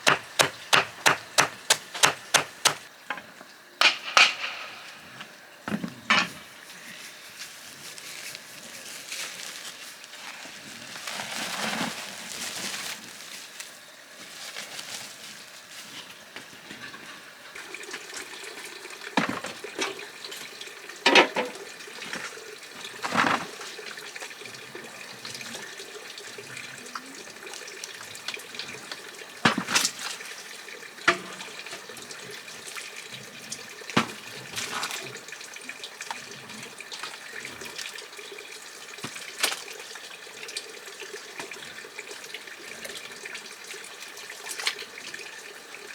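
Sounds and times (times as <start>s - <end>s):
sharp knocks and clatters: 0.0s - 3.2s, 3.8s - 5.3s
running water: 0.0s - 45.9s.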